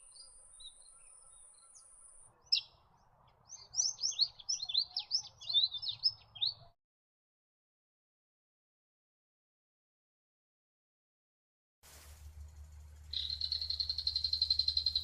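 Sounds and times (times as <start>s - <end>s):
songbird singing whistled notes: 0.0s - 2.8s, 3.5s - 6.7s, 13.1s - 15.0s
thin high hiss: 11.8s - 14.9s.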